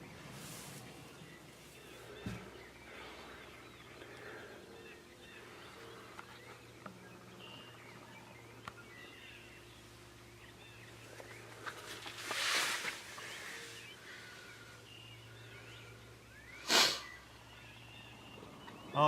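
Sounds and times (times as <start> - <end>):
faint low hum: 0.0 - 19.0
small birds chirping: 0.0 - 19.0.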